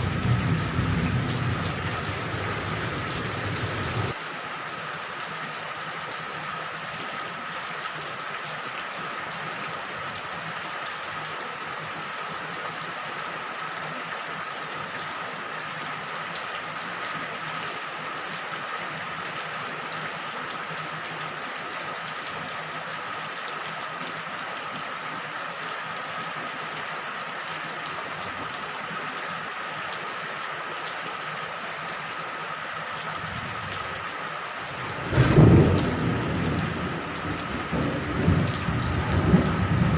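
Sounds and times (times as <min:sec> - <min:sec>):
thunder rumble: 0:00.0 - 0:04.1, 0:34.7 - 0:39.9
steady rain falling: 0:00.0 - 0:39.9.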